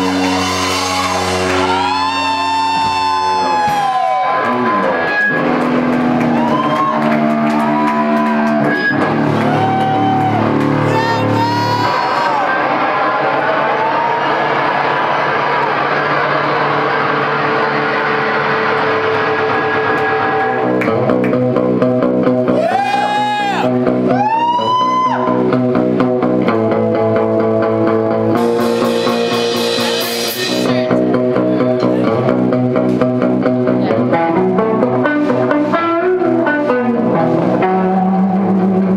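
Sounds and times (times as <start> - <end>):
bass guitar: 0.0 - 38.9
drums: 0.0 - 38.9
electric guitars: 0.0 - 38.9
steady drum beat: 28.4 - 31.3.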